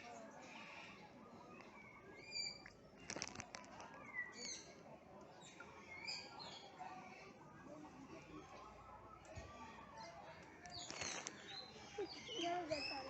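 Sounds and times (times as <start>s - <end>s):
birds chirping and whistling: 1.7s - 2.6s, 10.7s - 13.0s.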